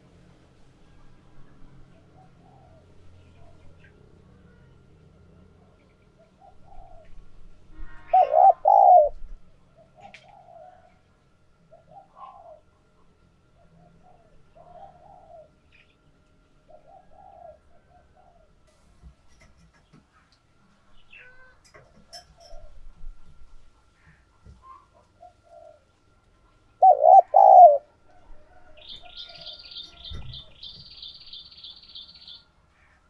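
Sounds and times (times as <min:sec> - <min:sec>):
dove cooing: 0:02.0 - 0:03.7, 0:06.2 - 0:11.1, 0:11.7 - 0:12.8, 0:13.6 - 0:15.7, 0:16.6 - 0:18.6, 0:24.0 - 0:25.9, 0:26.8 - 0:32.9.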